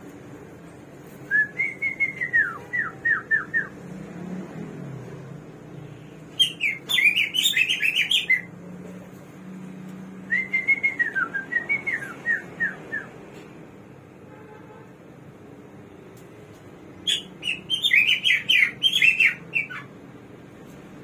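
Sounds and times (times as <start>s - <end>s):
songbird singing: 6.3s - 8.5s, 17.0s - 20.0s.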